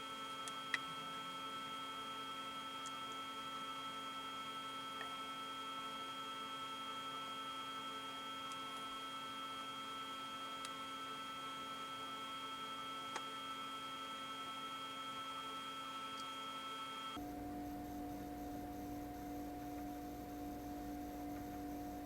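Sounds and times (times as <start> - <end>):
electrical hum: 7.7 - 22.0.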